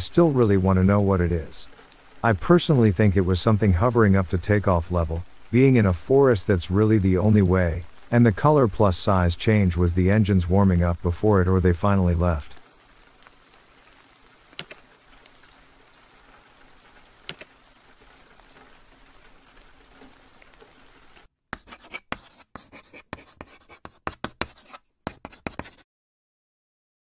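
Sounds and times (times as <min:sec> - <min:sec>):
light rain: 0:00.0 - 0:21.3
water drips: 0:00.0 - 0:21.3.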